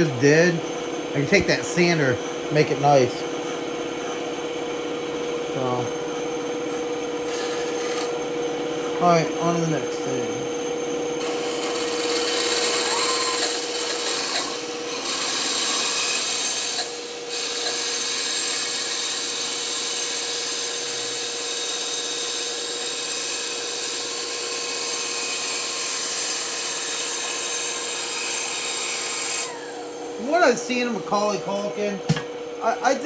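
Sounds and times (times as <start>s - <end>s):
rasping wood cutting: 0.0s - 31.9s
power tool motor hum: 0.0s - 32.2s.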